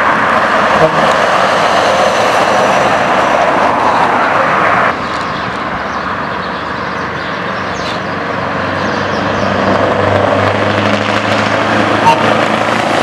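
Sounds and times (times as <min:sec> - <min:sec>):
truck engine through loud exhaust: 0:00.0 - 0:03.6, 0:04.3 - 0:13.0.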